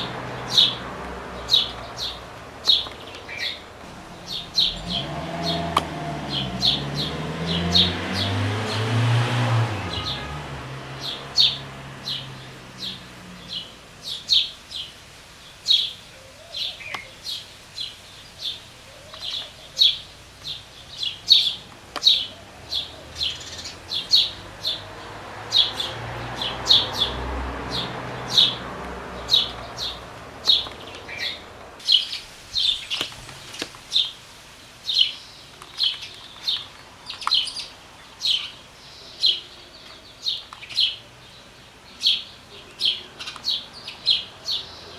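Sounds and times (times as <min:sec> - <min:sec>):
nestling birds begging chirps: 0:00.0 - 0:44.9.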